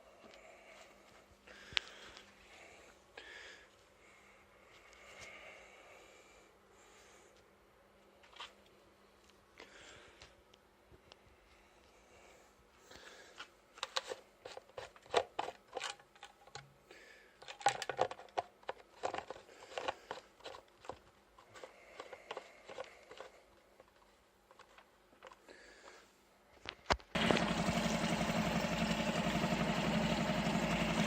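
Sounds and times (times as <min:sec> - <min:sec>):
rustling handling noises: 0:12.7 - 0:27.1.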